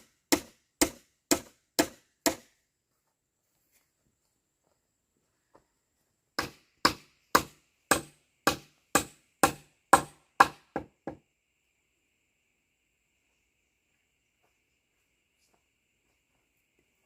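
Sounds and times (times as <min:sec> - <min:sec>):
tool striking wood: 0:00.0 - 0:02.5, 0:06.4 - 0:11.2.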